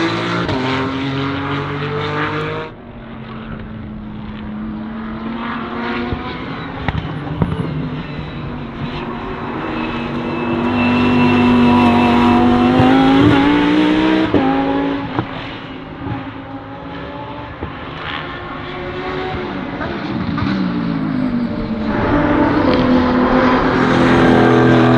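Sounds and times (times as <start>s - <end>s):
race car engine accelerating: 0.0s - 24.9s.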